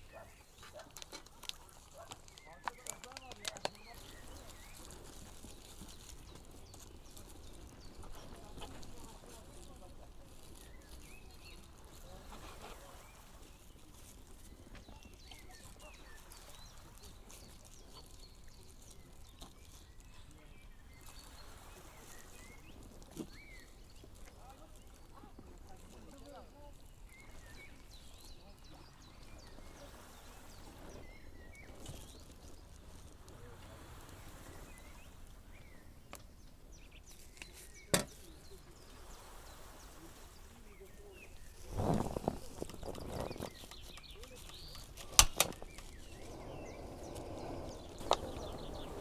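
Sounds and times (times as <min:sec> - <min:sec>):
bird chirps: 0:42.2 - 0:49.0.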